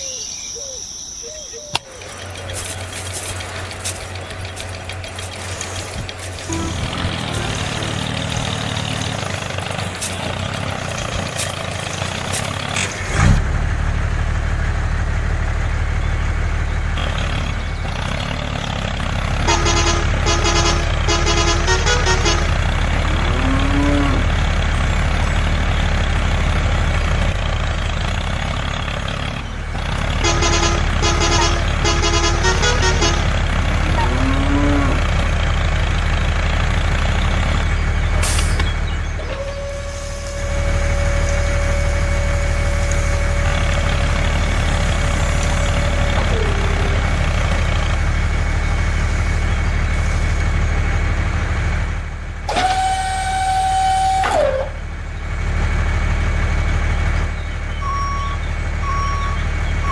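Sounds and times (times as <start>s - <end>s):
truck engine drone: 0.0s - 59.9s
quick chopped horn toots: 2.5s - 10.5s, 30.2s - 34.3s
rising and falling tone: 6.5s - 9.3s.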